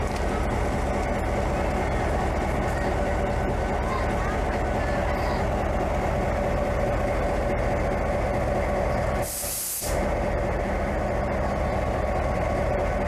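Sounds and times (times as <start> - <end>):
train rumbling: 0.0 - 13.0
air hiss from brakes: 9.2 - 10.2.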